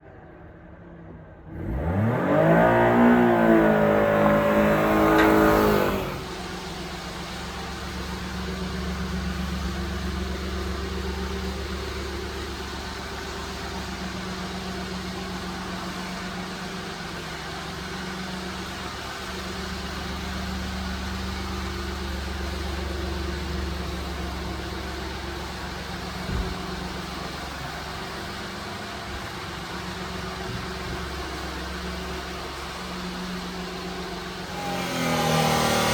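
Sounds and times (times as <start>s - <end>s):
small engine idling: 1.4s - 35.9s.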